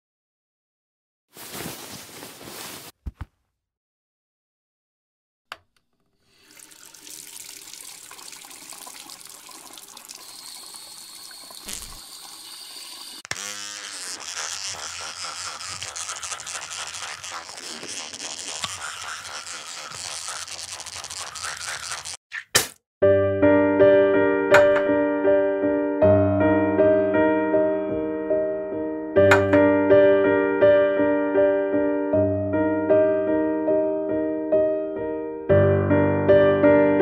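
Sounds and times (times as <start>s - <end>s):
tap water running into basin: 6.2s - 22.2s
electric toothbrush buzzing: 9.9s - 22.2s.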